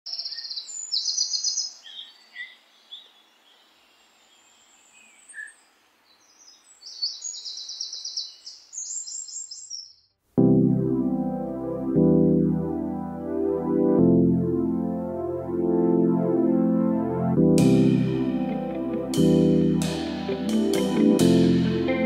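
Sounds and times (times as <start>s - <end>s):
songbirds chirping in rapid trills: 0.1s - 10.0s.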